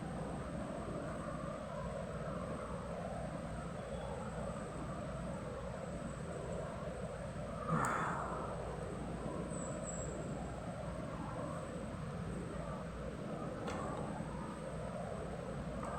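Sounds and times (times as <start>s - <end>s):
low background rumble: 7.3s - 15.9s.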